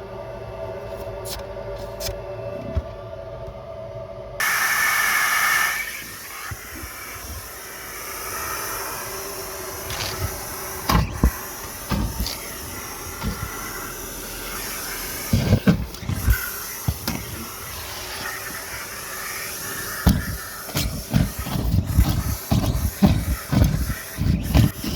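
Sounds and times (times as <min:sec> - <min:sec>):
vacuum hose hissing: 0:04.4 - 0:24.9
debris clacking in hose: 0:09.8 - 0:24.9.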